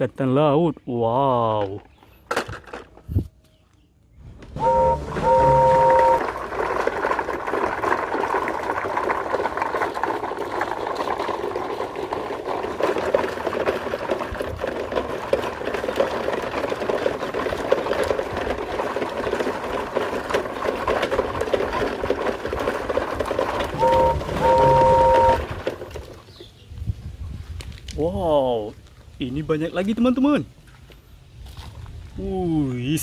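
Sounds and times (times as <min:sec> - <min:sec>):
short steady tone: 0:04.6 - 0:06.2, 0:23.8 - 0:25.4
toy train motor rattling: 0:04.6 - 0:26.1.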